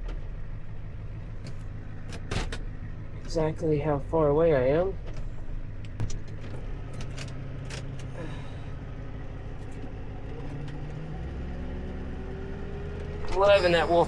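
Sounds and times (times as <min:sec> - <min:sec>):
tow truck engine idling: 0:00.0 - 0:14.0
deeper hum: 0:12.8 - 0:14.0.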